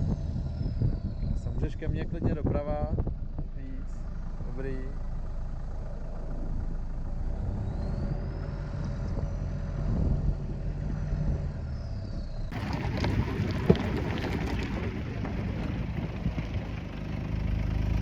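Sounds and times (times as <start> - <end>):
car engine droning: 0.0 - 18.0
rattles and clunks: 12.5 - 17.2.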